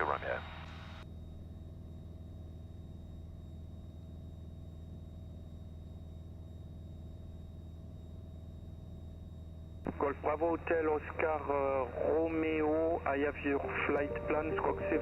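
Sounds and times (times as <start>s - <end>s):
faint high tone: 13.6s - 15.0s.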